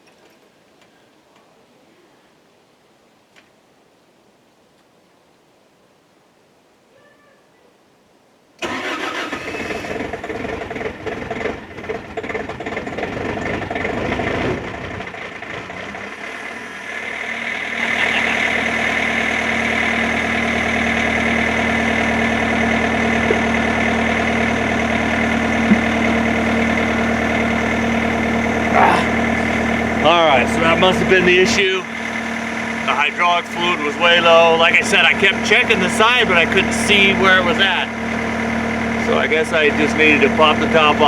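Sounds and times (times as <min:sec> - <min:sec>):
diesel engine starting and running: 0:08.6 - 0:41.0.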